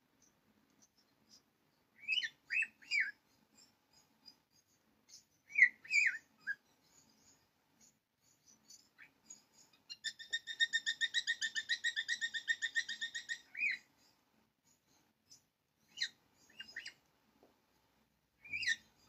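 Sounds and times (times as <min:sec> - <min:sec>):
bird trilling: 0:05.5 - 0:06.6, 0:09.9 - 0:13.9, 0:18.4 - 0:18.9
short bird chirps: 0:15.3 - 0:17.0.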